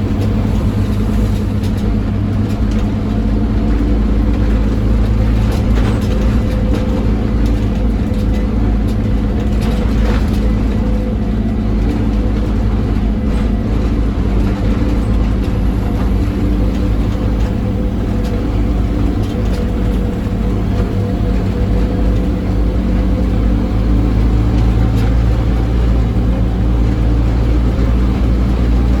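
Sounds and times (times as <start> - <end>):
bus diesel engine running hard: 0.0 - 29.0
road noise: 0.0 - 29.0.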